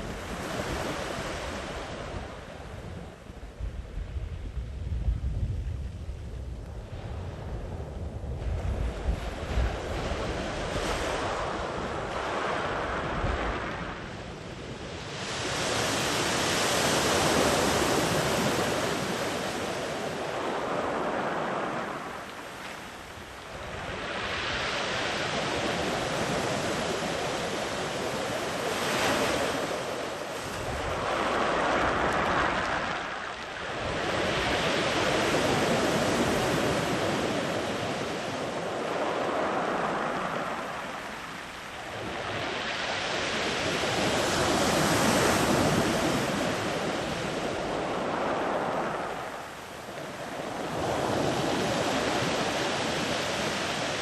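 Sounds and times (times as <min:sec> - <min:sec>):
waves breaking on sandy beach: 0:00.0 - 0:04.5, 0:06.8 - 0:54.0
wind buffeting microphone: 0:00.0 - 0:54.0.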